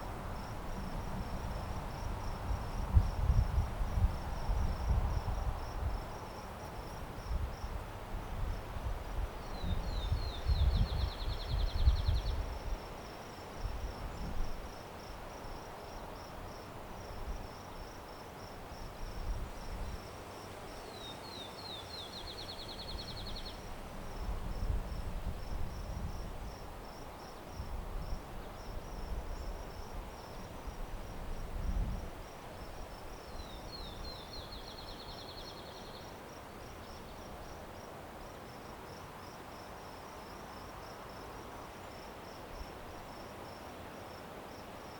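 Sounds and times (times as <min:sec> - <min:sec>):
wind rumble on microphone: 0:00.0 - 0:20.7, 0:22.2 - 0:35.2
crickets chirping: 0:00.0 - 0:44.9
songbird singing with trill: 0:09.4 - 0:12.4, 0:20.8 - 0:23.6, 0:33.2 - 0:36.1.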